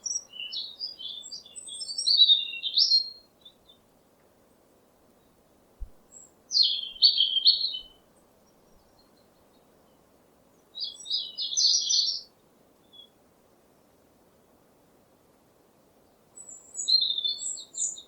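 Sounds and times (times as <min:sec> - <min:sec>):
bird chirping: 0:00.0 - 0:03.8, 0:05.8 - 0:13.2, 0:16.4 - 0:18.0
faint steady hum: 0:03.2 - 0:11.1.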